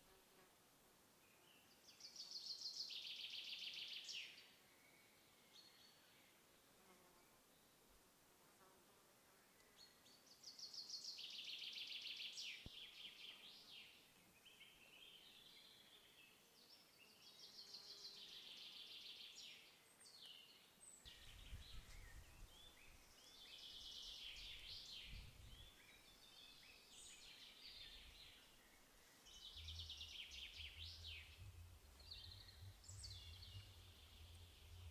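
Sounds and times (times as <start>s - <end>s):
songbird trilling: 21.1s - 34.9s
low rumble: 29.4s - 34.9s.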